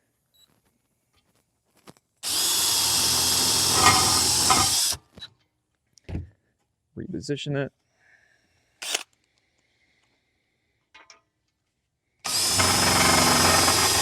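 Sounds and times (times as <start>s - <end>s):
power drill driving screw: 2.2s - 5.1s, 8.8s - 9.1s, 12.2s - 14.0s.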